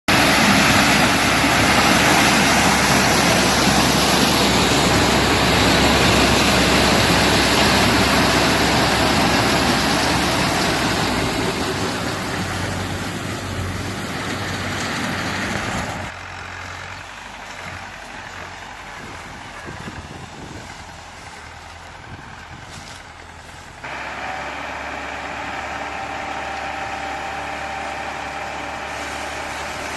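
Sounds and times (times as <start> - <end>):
tractor engine hum: 0.0 - 29.9
corn harvester mechanical noise: 0.1 - 29.9.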